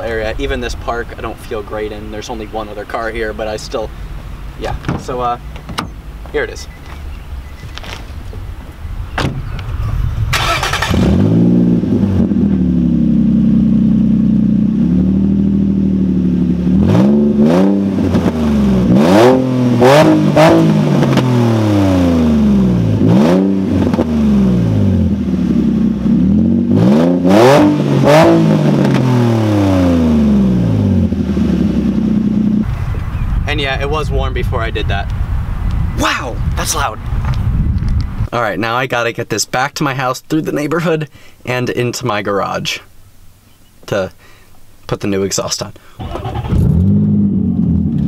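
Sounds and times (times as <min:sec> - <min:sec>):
loud car engine revving: 0:10.1 - 0:32.8, 0:46.1 - 0:48.0.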